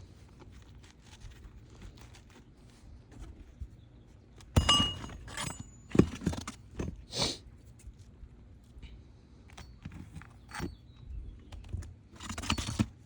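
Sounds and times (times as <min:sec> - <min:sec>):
shingles clattering: 0:04.6 - 0:06.5.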